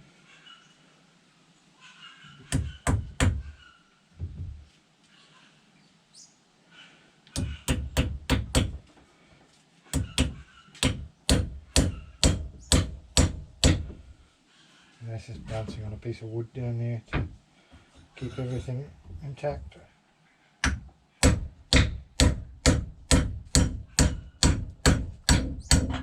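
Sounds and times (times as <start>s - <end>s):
hammer driving wooden wedge: 10.0s - 14.0s, 20.6s - 26.0s.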